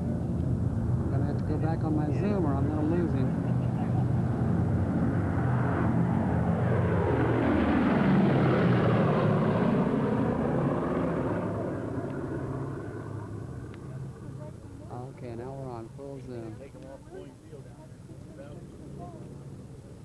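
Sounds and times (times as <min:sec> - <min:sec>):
propeller plane engines droning: 0:00.0 - 0:20.0.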